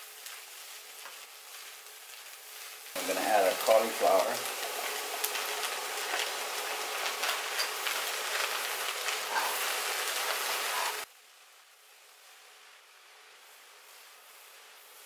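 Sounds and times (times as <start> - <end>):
spatula stirring: 0.0 - 11.1
vegetables sizzling in a skillet: 0.0 - 15.0.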